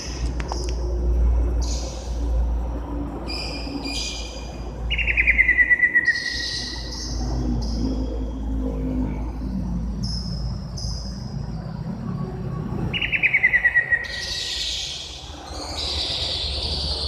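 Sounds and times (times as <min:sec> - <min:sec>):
bird singing chirps and trills: 0:00.0 - 0:17.0.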